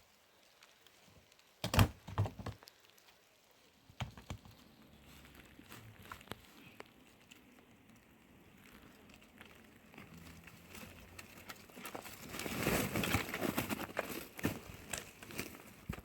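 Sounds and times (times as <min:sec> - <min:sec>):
crinkling rustle: 0:00.0 - 0:16.0.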